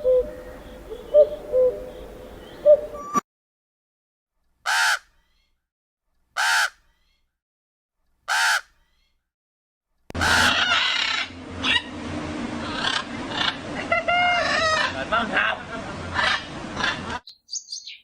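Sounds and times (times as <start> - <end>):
rough animal call: 8.3 - 8.7, 10.2 - 11.9.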